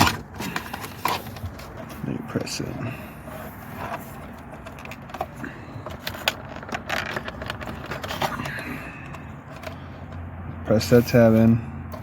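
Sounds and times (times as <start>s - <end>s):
plastic clicks and scrapes: 0.0s - 2.0s, 3.2s - 10.2s.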